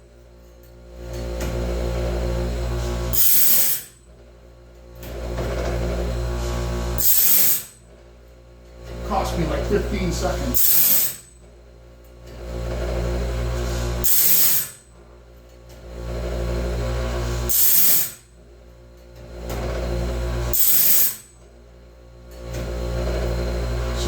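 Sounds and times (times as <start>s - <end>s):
electric grinder humming: 1.0s - 4.0s, 5.0s - 7.8s, 8.8s - 11.4s, 12.3s - 15.0s, 15.8s - 18.3s, 19.2s - 21.4s, 22.4s - 24.0s
grinding wheel hissing on metal: 1.4s - 4.0s, 5.1s - 7.8s, 8.9s - 11.4s, 12.4s - 14.9s, 16.0s - 18.3s, 19.5s - 21.4s, 22.5s - 24.0s.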